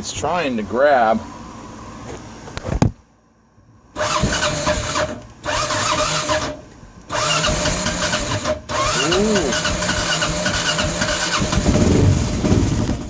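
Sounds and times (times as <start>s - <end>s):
motorcycle starter cranking: 4.0s - 13.0s.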